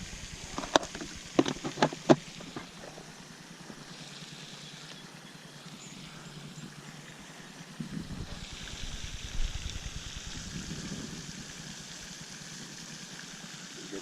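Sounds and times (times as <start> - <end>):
faint outdoor background hiss: 0.0 - 14.0
sharp clicks and knocks: 0.5 - 2.7.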